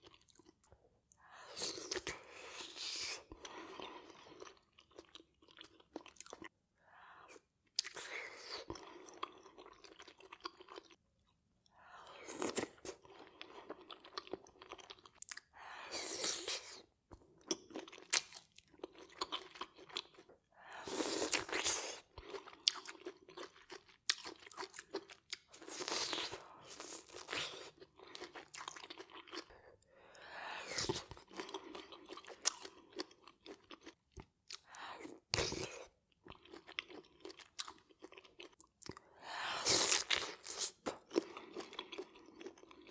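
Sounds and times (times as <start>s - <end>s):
person biting and chewing food: 39.6s - 42.9s.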